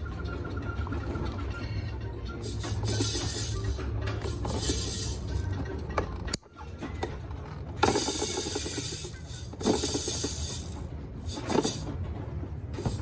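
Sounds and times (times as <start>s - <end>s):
plastic toy parts clicking: 7.8s - 11.9s.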